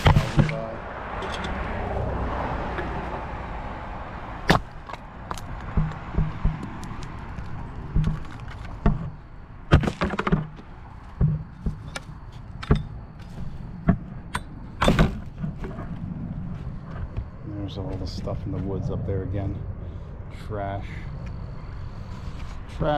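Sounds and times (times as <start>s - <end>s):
low rumble: 12.8s - 22.7s.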